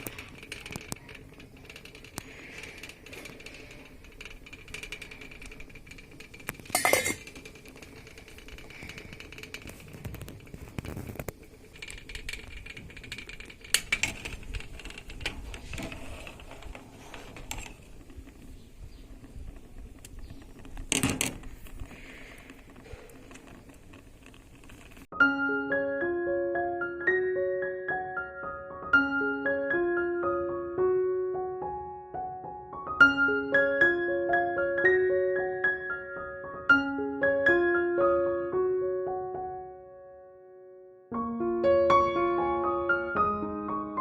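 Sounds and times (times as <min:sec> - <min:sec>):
household objects clinking: 0:02.2 - 0:09.0.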